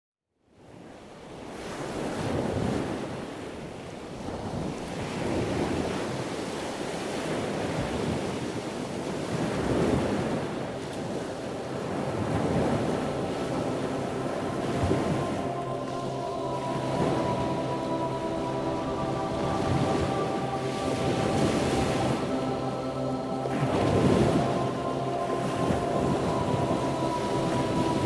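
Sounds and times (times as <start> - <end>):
rushing noise: 12.6 - 28.0.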